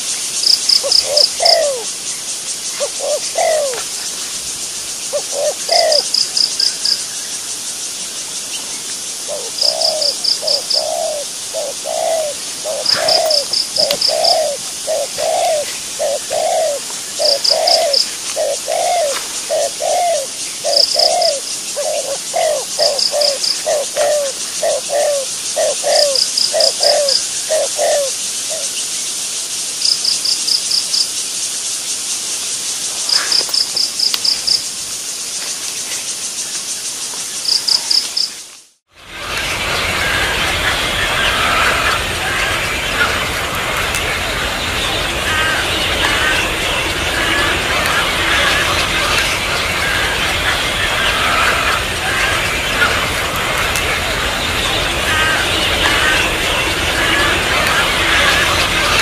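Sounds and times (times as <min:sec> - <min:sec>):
steady high hiss: 0:00.0 - 0:59.0
bird repeating low note: 0:09.3 - 0:28.1.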